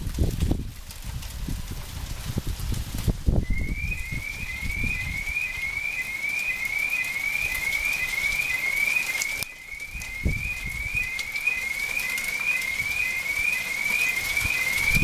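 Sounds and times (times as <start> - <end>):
hail pattering: 0.0 - 15.0
wind buffeting microphone: 0.0 - 15.0
car alarm whooping: 3.4 - 15.0.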